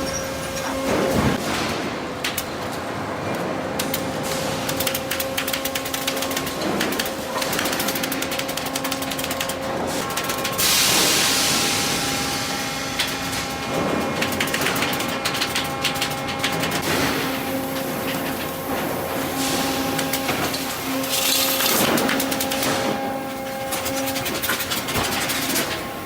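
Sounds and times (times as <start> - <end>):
rapid clicking and rattling: 3.8 - 11.1, 13.0 - 17.0
lumber machinery humming: 4.9 - 26.0.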